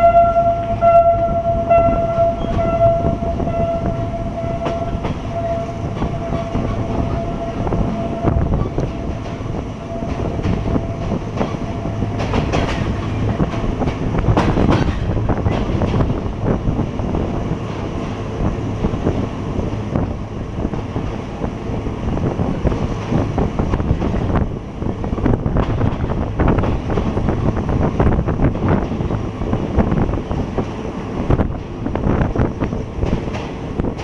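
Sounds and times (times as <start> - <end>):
train wheels rumbling on rails: 0.0 - 34.0
wind buffeting microphone: 0.0 - 34.0.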